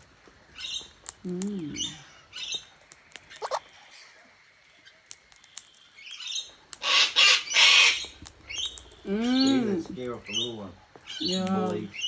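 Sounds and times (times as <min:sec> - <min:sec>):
birds squabbling harshly: 0:01.7 - 0:04.2, 0:06.0 - 0:12.0.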